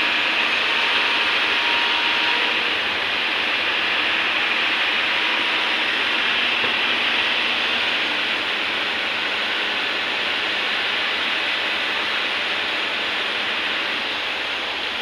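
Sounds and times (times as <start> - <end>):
hydraulic excavator running: 0.0 - 15.0.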